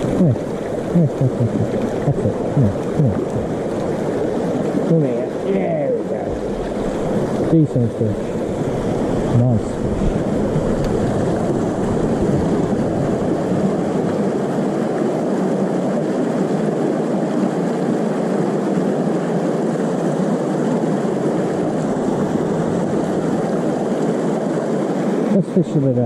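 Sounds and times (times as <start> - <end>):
low rumble: 0.0 - 14.6
stream water rushing: 0.0 - 26.0.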